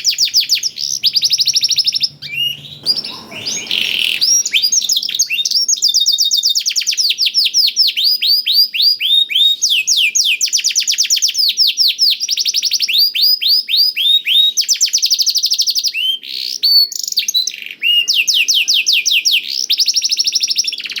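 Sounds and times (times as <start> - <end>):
canary singing whistled notes: 0.0 - 10.6.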